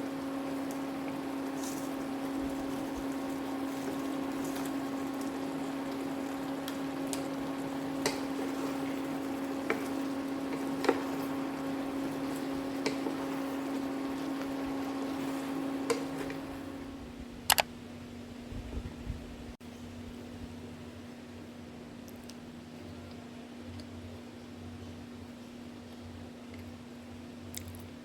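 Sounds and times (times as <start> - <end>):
water hissing and bubbling: 0.0 - 16.7
kettle electric hum: 0.0 - 28.0.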